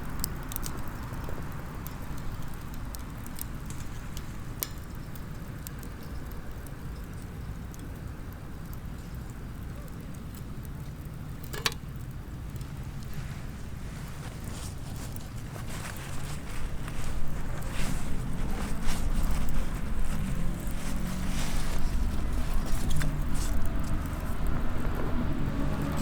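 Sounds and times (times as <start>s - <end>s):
wood fire crackling: 0.0s - 26.0s
low steady rumble: 12.4s - 26.0s.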